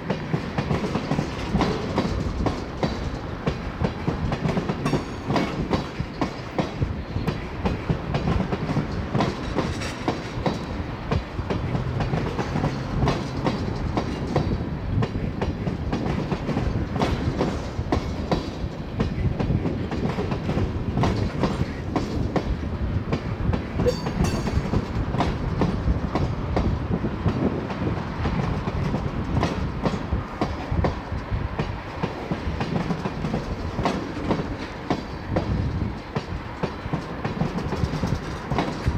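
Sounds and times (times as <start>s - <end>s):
freight train rumbling past: 0.0s - 38.9s
wheels clacking over rail joints: 0.0s - 38.9s.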